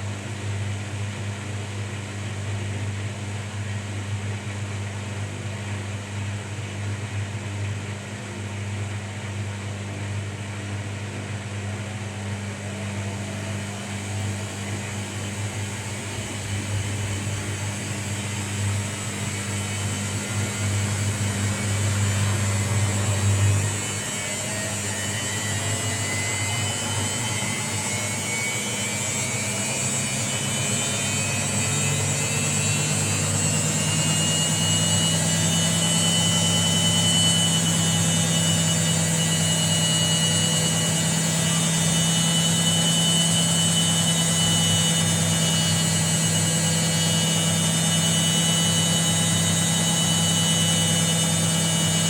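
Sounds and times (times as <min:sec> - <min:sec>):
washing machine motor hum: 0:00.0 - 0:52.0
faint rising whine: 0:10.4 - 0:52.0.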